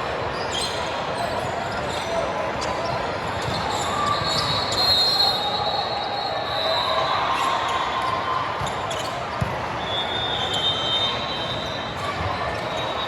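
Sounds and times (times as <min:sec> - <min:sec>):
spectator chatter: 0:00.0 - 0:13.0
sneakers squeaking on court floor: 0:00.3 - 0:13.0.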